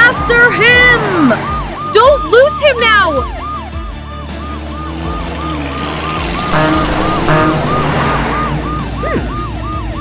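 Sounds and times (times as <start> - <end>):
cartoon police siren wailing: 0.0 - 10.0
vehicle noise: 0.0 - 10.0
chase music: 3.1 - 10.0
short siren blasts: 4.4 - 10.0.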